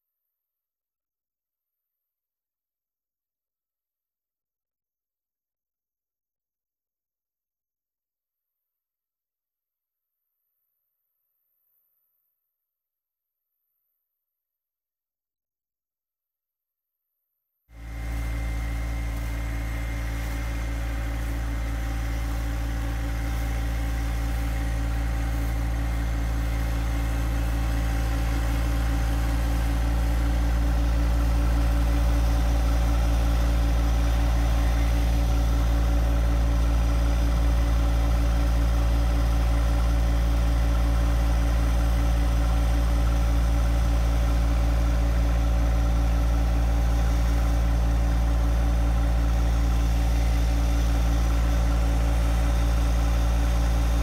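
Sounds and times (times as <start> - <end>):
tractor diesel engine running: 17.8 - 54.0.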